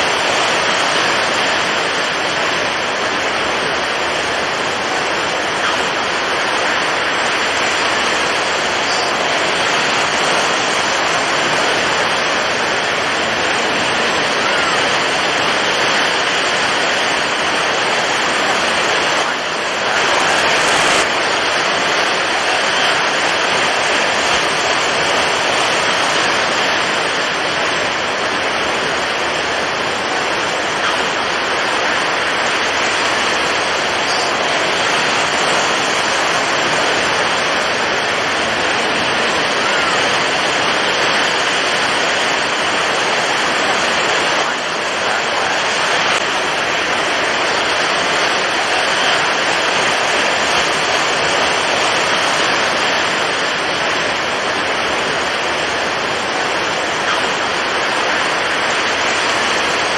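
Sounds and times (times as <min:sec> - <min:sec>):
strong wind: 0:00.0 - 0:59.9.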